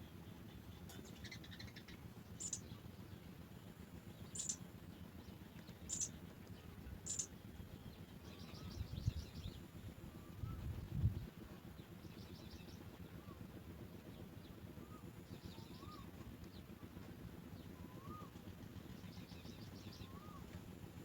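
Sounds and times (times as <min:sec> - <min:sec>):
sparrows chirping: 0:00.0 - 0:03.3, 0:04.1 - 0:09.7, 0:11.2 - 0:13.3, 0:14.0 - 0:16.3, 0:18.8 - 0:20.5
faint low background rumble: 0:00.0 - 0:21.0.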